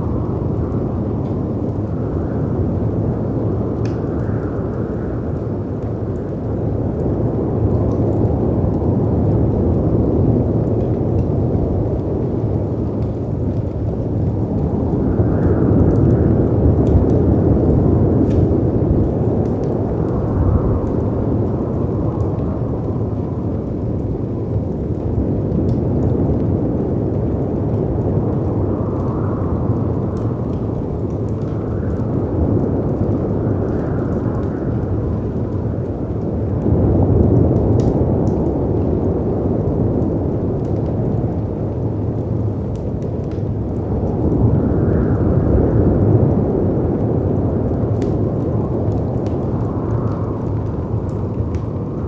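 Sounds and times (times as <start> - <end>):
howling wind gusts: 0.0 - 52.0
rushing wind: 0.0 - 52.0
fireplace crackling: 46.4 - 52.0.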